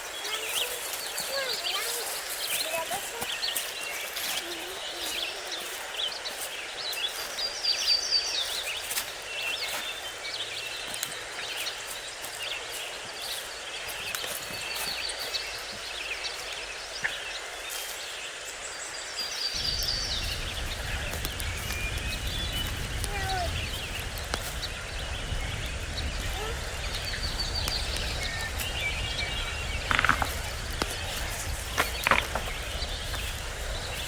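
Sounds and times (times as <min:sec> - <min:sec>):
small birds chirping: 0:00.0 - 0:34.0
steady outdoor hiss: 0:00.0 - 0:34.0
low rumble: 0:19.6 - 0:34.0.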